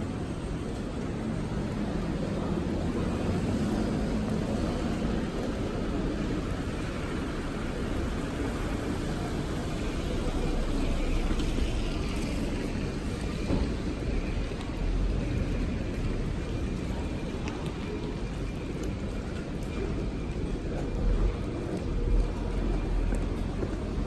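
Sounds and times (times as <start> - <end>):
road traffic passing: 0.1 - 24.0.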